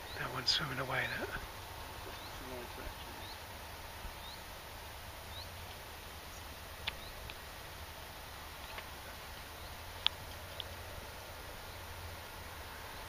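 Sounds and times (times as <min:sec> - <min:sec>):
small birds chirping: 0:00.0 - 0:13.0
steady background hiss: 0:00.0 - 0:13.0
sharp ticks: 0:10.0 - 0:10.8.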